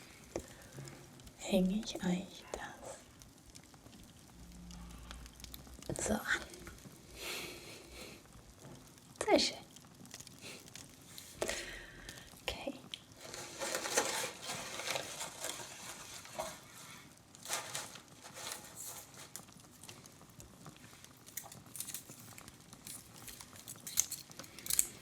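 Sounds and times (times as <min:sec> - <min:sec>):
fireplace crackling: 0:00.0 - 0:25.0
ornaments clicking and rustling: 0:13.1 - 0:20.0, 0:21.2 - 0:25.0.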